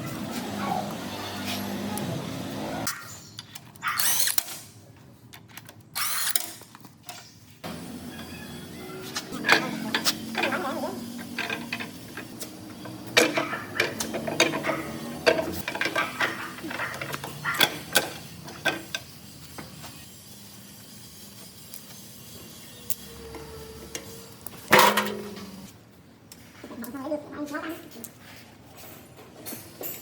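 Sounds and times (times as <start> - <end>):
metal tools clanking: 9.1 - 19.2, 23.9 - 25.7.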